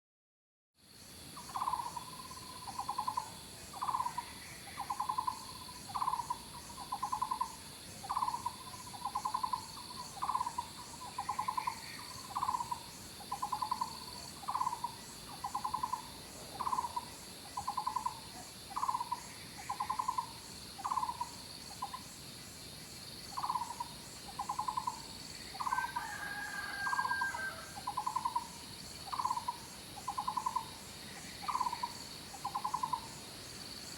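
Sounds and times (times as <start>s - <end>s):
high-pitched insect trilling: 1.4s - 22.6s, 23.2s - 33.9s
higher animal call: 25.6s - 28.4s.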